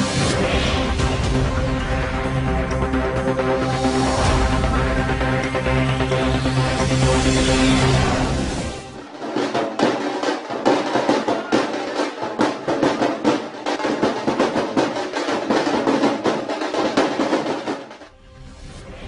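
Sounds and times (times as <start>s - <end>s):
rapid drumming with drum rolls: 9.0s - 18.1s.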